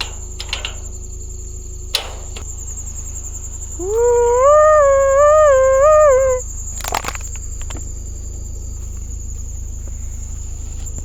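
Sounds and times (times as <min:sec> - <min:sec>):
crickets chirping: 0:00.0 - 0:11.0
long wavering howl: 0:02.9 - 0:06.8.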